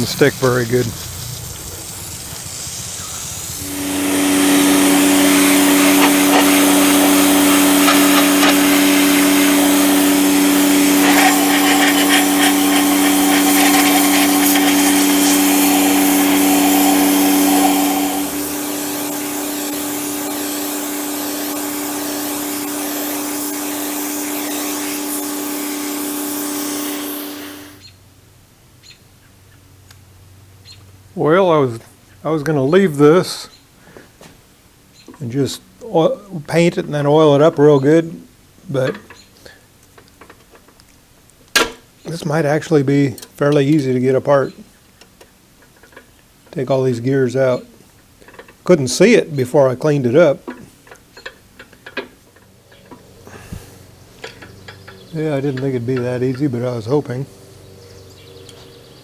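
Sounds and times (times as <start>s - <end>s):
machine motor humming and hissing: 0.0s - 27.8s, 52.7s - 59.0s.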